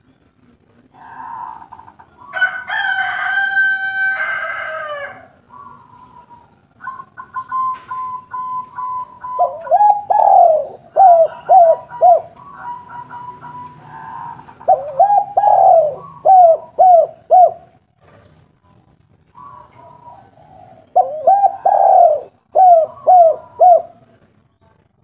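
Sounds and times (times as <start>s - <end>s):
dove cooing: 0.9s - 2.9s, 4.7s - 17.9s, 19.3s - 24.2s
rooster crowing: 2.2s - 5.4s, 11.2s - 14.5s.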